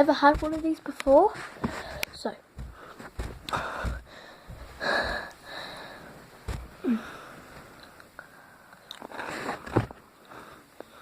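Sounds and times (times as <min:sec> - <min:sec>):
small knocks: 0:00.0 - 0:05.4.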